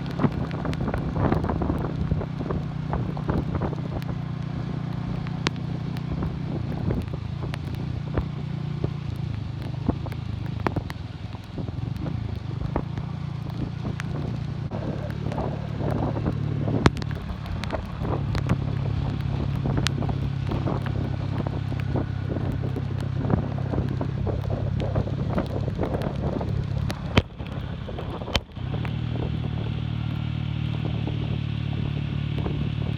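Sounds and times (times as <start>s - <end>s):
motorcycle engine cruising: 0.0s - 32.9s
wind on microphone: 0.0s - 32.9s
sharp clicks and taps: 4.9s - 14.4s, 15.0s - 29.0s.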